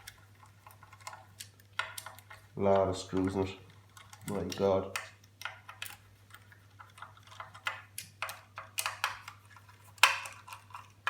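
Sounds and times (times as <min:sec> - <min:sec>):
screwdriver clicking and tapping: 0:04.0 - 0:09.4.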